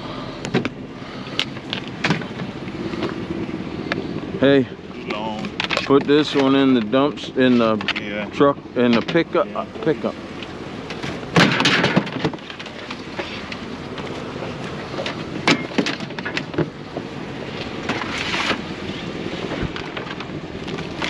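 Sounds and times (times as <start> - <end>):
plastic tubs knocking and clunking: 11.4 - 12.8
wind noise on microphone: 17.8 - 21.0.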